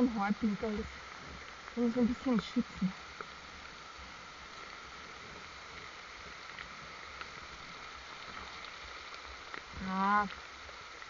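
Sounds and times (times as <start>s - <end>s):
faint ticks: 0.0s - 11.0s
rain: 0.0s - 11.0s
wind: 0.0s - 11.0s.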